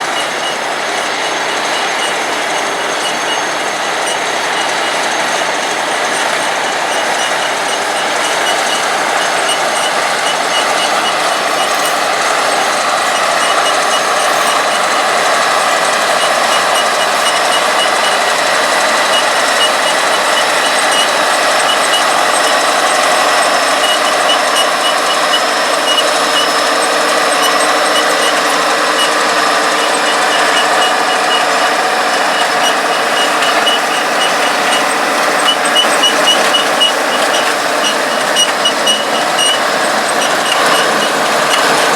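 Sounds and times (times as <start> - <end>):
faint rapid high ticking: 0.0 - 41.9
tractor diesel engine drone: 0.0 - 41.9.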